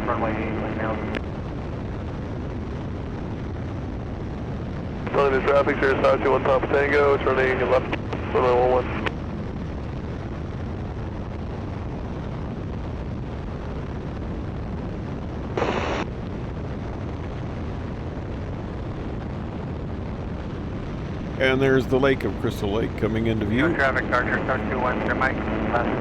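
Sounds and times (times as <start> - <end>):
wind noise in open cockpit: 0.0 - 26.0
biplane engine: 20.8 - 25.7.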